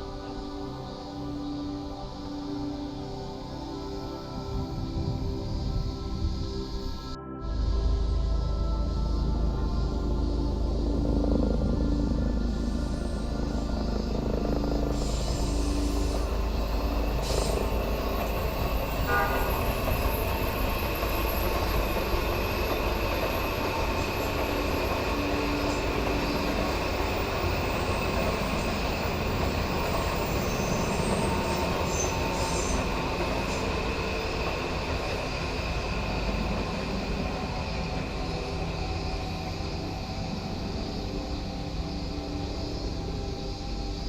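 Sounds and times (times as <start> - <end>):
train wheels on rails: 11.6 - 44.0.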